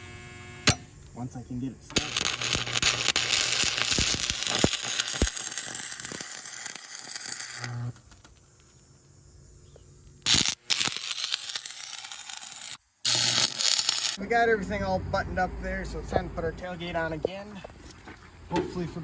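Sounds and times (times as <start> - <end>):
arc welding crackling: 0.3 - 8.9, 10.0 - 14.2.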